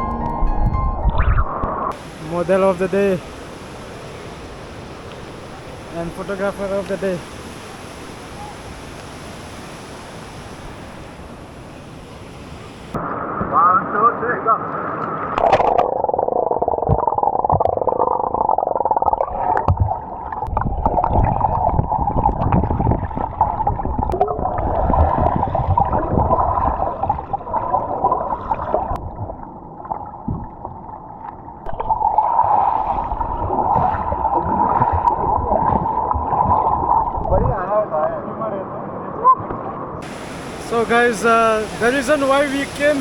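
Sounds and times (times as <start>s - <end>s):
underwater rumbling and bubbling: 0.2s - 2.2s, 15.2s - 37.6s, 39.4s - 40.6s.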